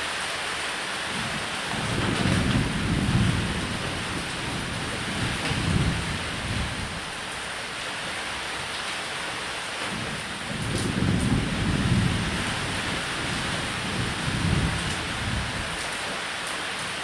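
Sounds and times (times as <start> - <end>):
heavy rain: 0.0 - 17.0
thunder rumbling: 1.2 - 8.4, 9.9 - 16.0.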